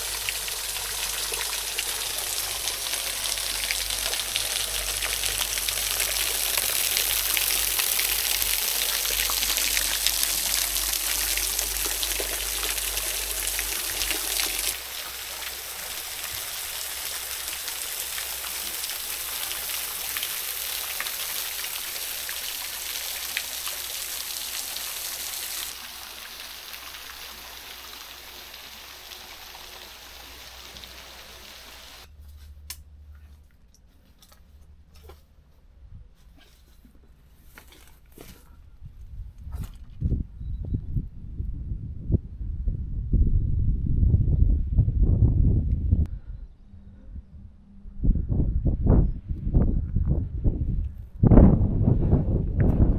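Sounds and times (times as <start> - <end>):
water rushing from waterfall: 0.0 - 32.1.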